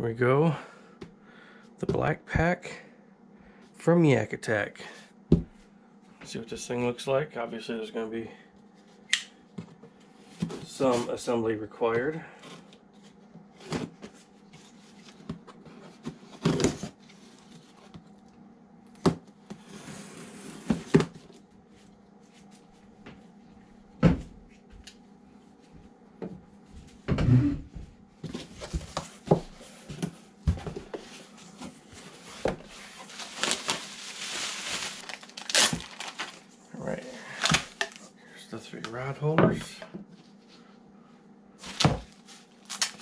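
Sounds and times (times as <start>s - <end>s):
cardboard scraping and rustling: 19.6s - 21.3s, 28.3s - 36.5s, 41.6s - 42.8s.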